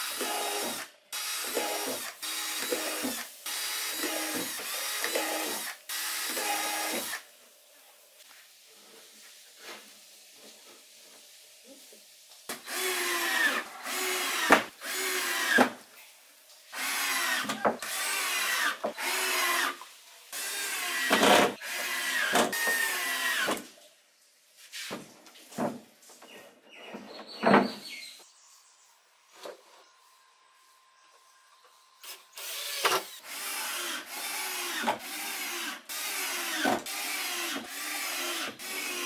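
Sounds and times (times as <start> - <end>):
cordless drill whining: 0.0 - 7.2, 12.6 - 15.6, 16.8 - 19.7, 32.0 - 39.0.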